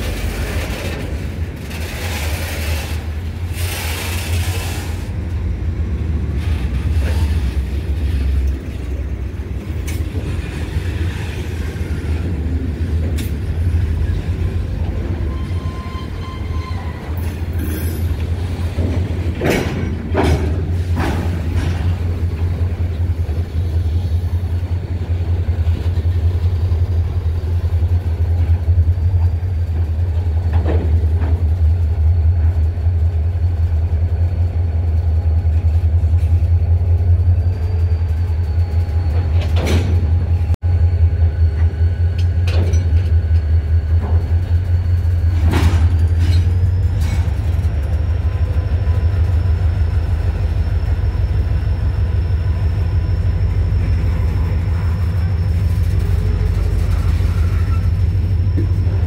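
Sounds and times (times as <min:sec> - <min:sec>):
freight train rumbling: 0:00.0 - 0:59.0.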